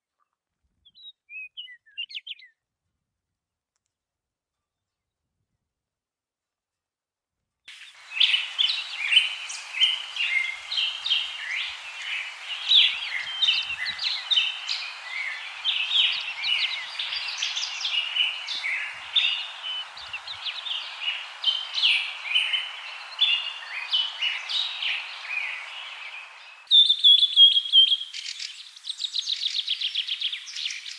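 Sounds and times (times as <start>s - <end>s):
small birds chirping: 0.8s - 2.6s, 7.7s - 30.9s
steady hiss: 7.7s - 30.9s.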